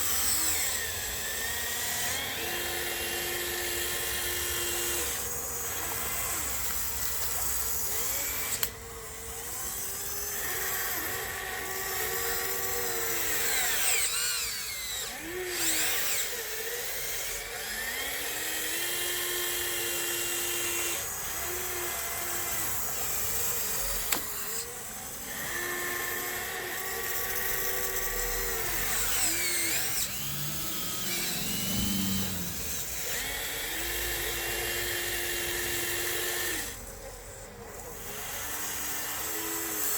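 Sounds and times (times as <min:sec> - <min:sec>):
toy bulldozer motors whining: 0:00.0 - 0:39.9.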